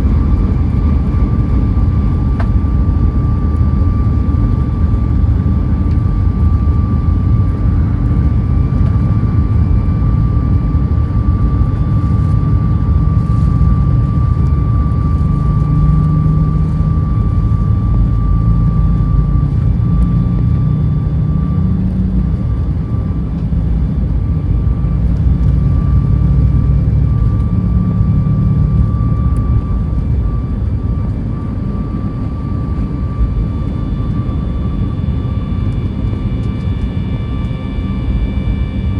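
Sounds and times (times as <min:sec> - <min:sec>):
airliner engine rumble: 0:00.0 - 0:38.9
thin jet engine whine: 0:00.0 - 0:38.9.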